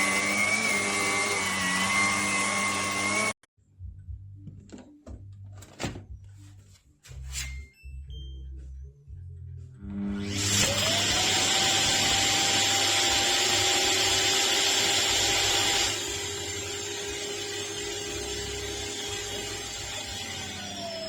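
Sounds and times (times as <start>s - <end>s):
vacuum cleaner motor whining: 0.0s - 3.4s, 10.0s - 21.0s.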